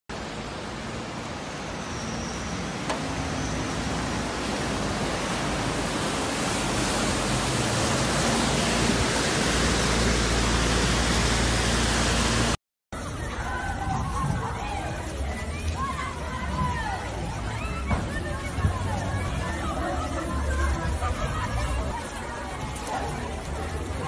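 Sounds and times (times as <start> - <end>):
heavy rain pouring: 0.1 - 12.6.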